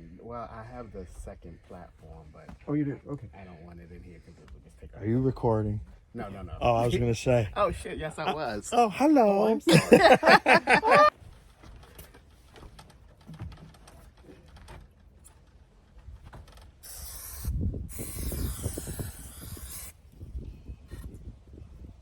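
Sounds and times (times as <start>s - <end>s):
aerosol spray can hissing: 16.8s - 20.0s.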